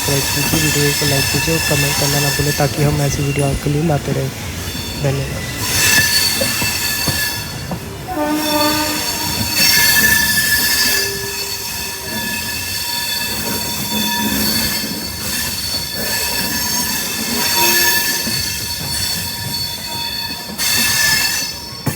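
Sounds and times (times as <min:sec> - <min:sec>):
rumble of rolling carriages: 0:00.0 - 0:21.9
train wheels squealing: 0:04.6 - 0:21.9.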